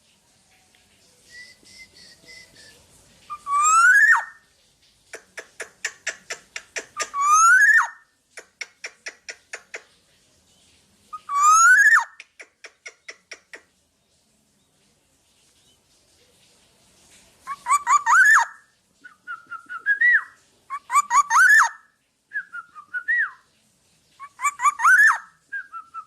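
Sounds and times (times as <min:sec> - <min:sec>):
bird whistled notes: 0:01.3 - 0:04.3.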